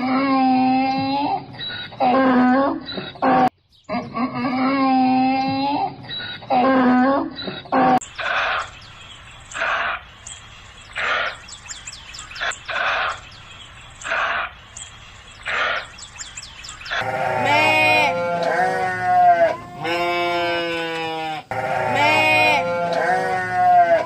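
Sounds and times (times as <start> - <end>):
small birds chirping: 0.8 - 4.4, 5.0 - 24.0
sheep bleating loudly: 17.0 - 24.0.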